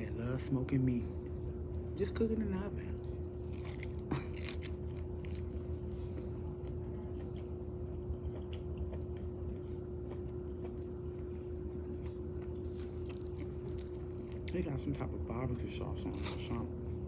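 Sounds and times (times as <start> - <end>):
steady hum: 0.0 - 17.0
person chewing wetly: 3.0 - 15.0.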